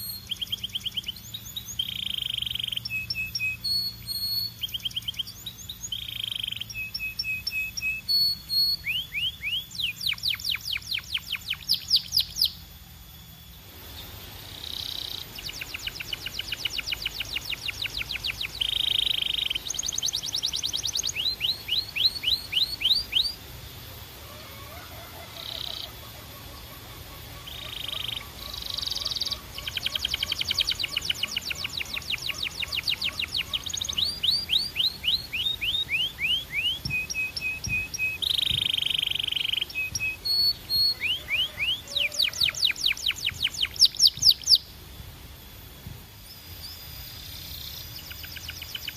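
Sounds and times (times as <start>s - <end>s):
canary singing trills: 0.0s - 44.8s, 46.2s - 48.9s.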